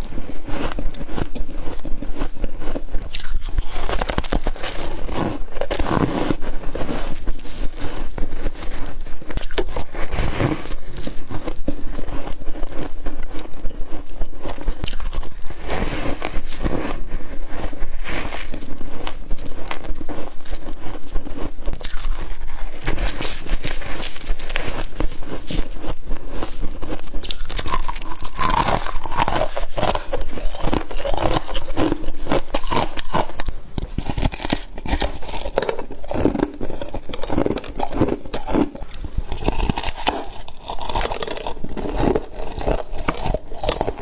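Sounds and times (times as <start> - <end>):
crunching and chewing frost: 0.0 - 44.0.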